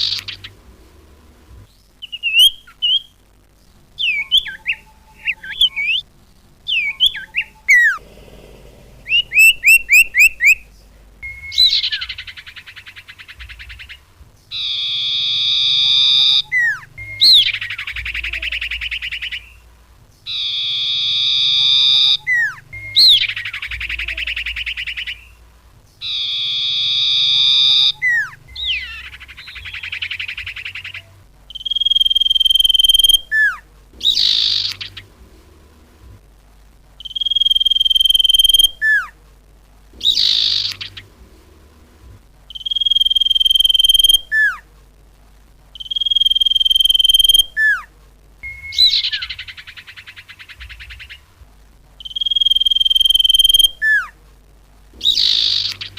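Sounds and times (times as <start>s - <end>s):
bird chirps and whistles: 0.0s - 0.5s, 2.0s - 3.2s, 4.0s - 6.0s, 6.7s - 8.0s, 9.1s - 19.6s, 20.3s - 25.4s, 26.0s - 35.0s, 37.0s - 39.1s, 40.0s - 41.0s, 42.5s - 44.6s, 45.8s - 51.3s, 52.0s - 54.1s, 55.0s - 55.9s
harsh buzzing bird calls: 0.0s - 35.2s, 37.0s - 39.2s, 39.9s - 41.3s, 42.5s - 44.7s, 45.8s - 51.4s, 52.0s - 54.2s, 54.9s - 55.9s.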